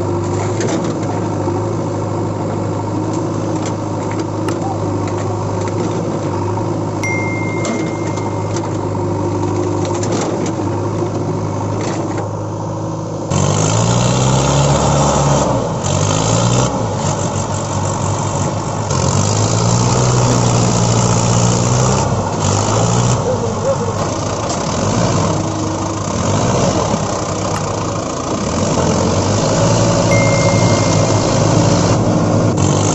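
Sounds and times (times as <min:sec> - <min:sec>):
engine revving: 0:13.3 - 0:23.4, 0:24.0 - 0:32.9.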